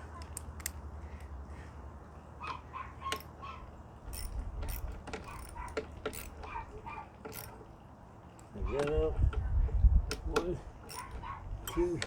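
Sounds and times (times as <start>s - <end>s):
hand ratchet clicking: 4.1s - 6.6s, 7.3s - 7.6s, 10.1s - 12.0s
short metallic squeaks: 10.9s - 11.9s.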